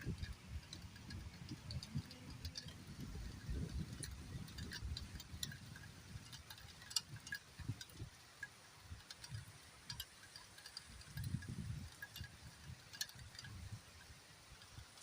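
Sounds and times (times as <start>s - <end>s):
raindrops dripping and pattering: 0.0s - 15.0s.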